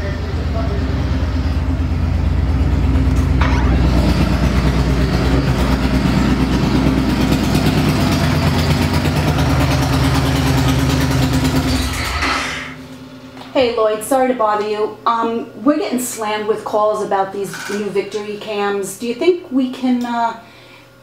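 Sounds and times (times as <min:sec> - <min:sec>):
motorcycle engine running: 0:00.0 - 0:13.1.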